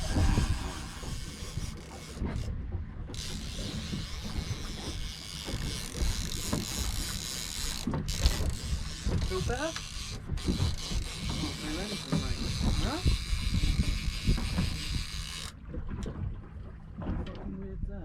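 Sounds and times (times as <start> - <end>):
sea wash: 0.0 - 17.6
wind rumble on microphone: 0.0 - 18.0.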